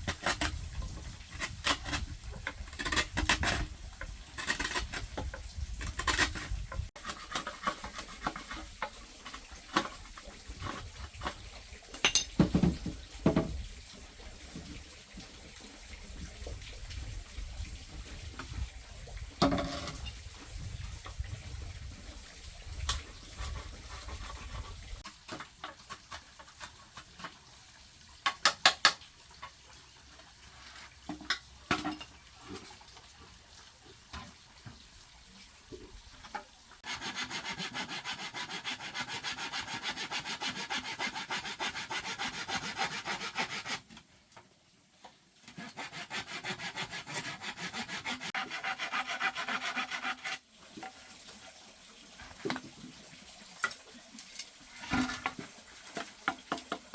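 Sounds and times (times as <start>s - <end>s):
hand saw rasping through bamboo: 0.0s - 11.3s, 23.0s - 27.4s, 36.8s - 44.0s, 45.5s - 50.5s.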